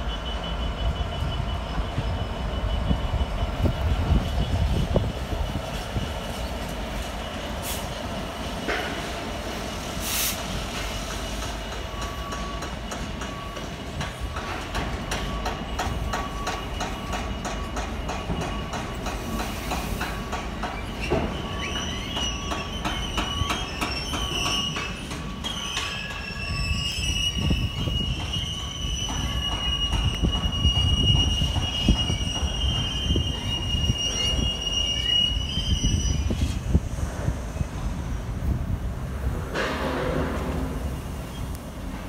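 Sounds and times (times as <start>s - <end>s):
freight train rumbling past: 0.0s - 42.0s
high-pitched wheel squeal: 20.6s - 36.7s.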